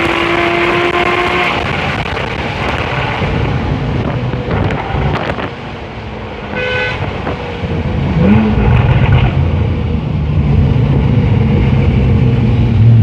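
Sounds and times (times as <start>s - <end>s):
car engine revving: 0.0s - 13.0s
car horn toot: 6.5s - 7.2s.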